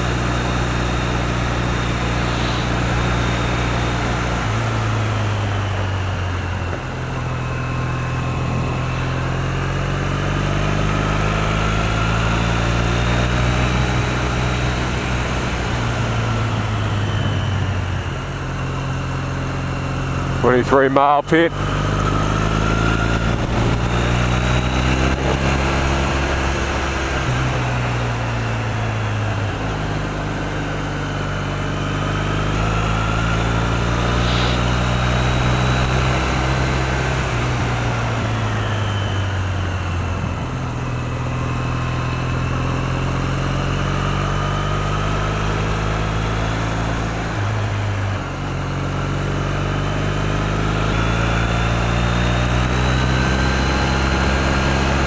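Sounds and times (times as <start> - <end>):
motorcycle engine running: 0.0 - 55.0
wind rush: 2.0 - 3.2, 22.7 - 30.1, 33.8 - 36.4.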